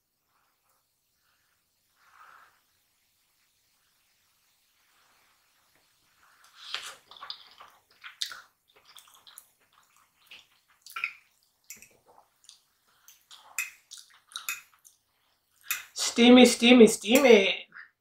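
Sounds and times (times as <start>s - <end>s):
wet chewing mouth sounds: 6.4s - 15.0s.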